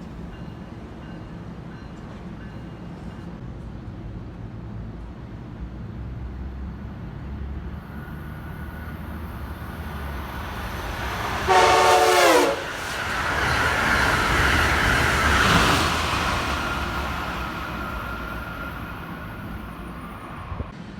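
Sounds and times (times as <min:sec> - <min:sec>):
oncoming train noise: 0:00.0 - 0:20.9
train horn blast: 0:11.2 - 0:13.0.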